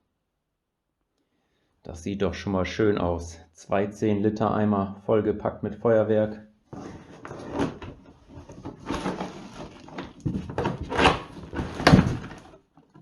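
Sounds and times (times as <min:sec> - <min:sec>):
plastic bucket scraping: 0:06.7 - 0:13.0.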